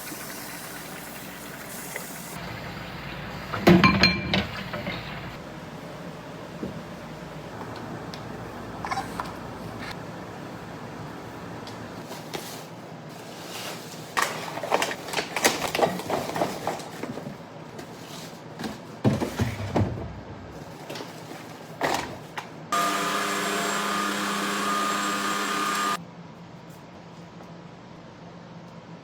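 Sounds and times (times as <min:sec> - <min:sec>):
small electric motor humming: 0:22.7 - 0:26.0.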